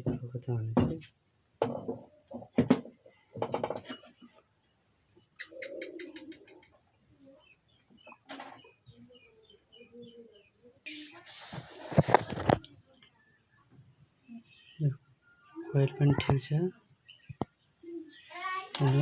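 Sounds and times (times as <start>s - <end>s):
small birds chirping: 3.1s - 19.0s
pigeon cooing: 5.4s - 7.5s, 8.1s - 11.1s, 17.8s - 18.3s.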